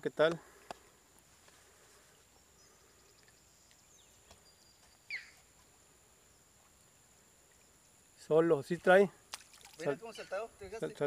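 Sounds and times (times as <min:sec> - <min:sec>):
bird call whistle: 0:05.1 - 0:05.4.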